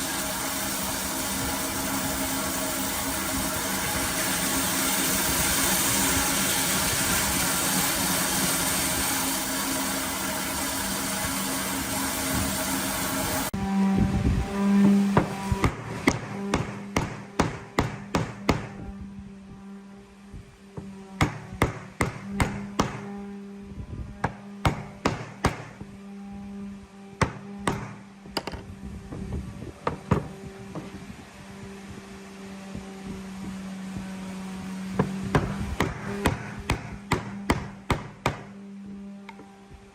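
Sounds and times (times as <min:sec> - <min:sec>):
machine motor hissing and humming: 0:00.0 - 0:39.9
tool tapping on wood: 0:20.8 - 0:23.1, 0:27.2 - 0:28.7, 0:35.0 - 0:38.5.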